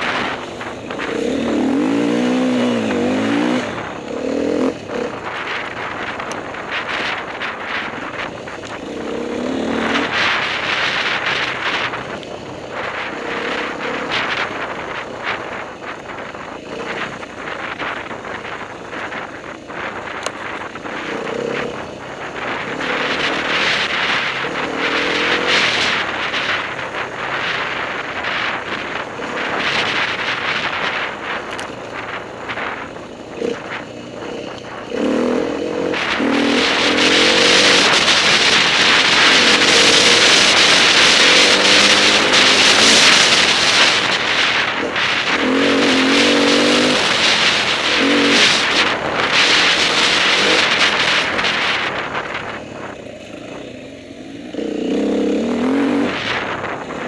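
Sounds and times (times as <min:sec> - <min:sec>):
dirt bike engine revving: 0:00.0 - 0:57.0
wind on microphone: 0:00.0 - 0:57.0.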